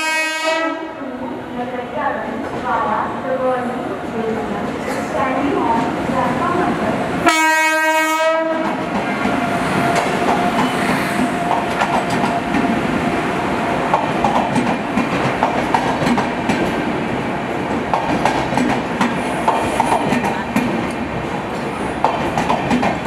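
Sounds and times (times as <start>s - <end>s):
train rumble: 0.0s - 23.0s
wheels clicking over rail joints: 17.7s - 23.0s.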